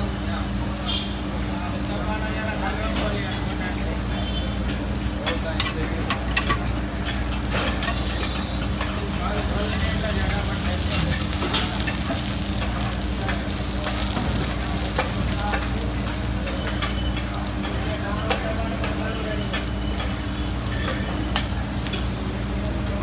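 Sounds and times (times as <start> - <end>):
food sizzling on a griddle: 0.0 - 23.0.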